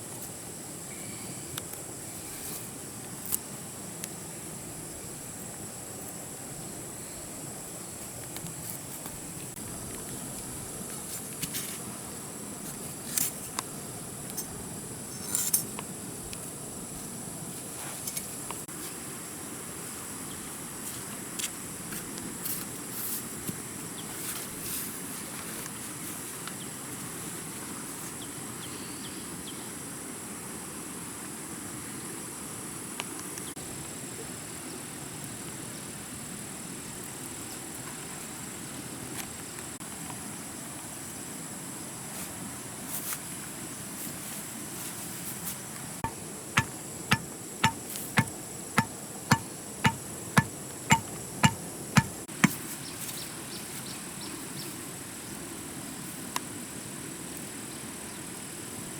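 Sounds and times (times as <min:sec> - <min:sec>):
sharp clicks and knocks: 0:46.6 - 0:52.6.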